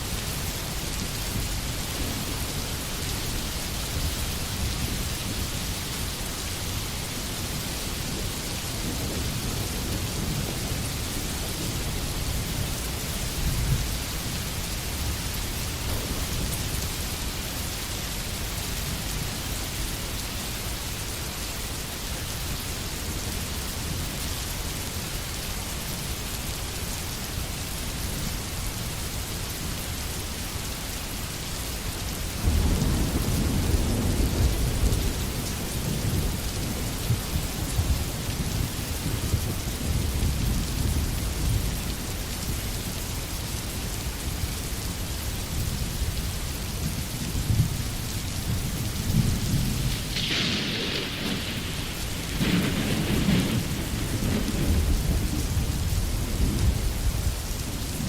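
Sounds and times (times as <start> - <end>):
steady rain falling: 0.0 - 58.0
thunder rumbling: 32.4 - 41.8, 48.5 - 58.0.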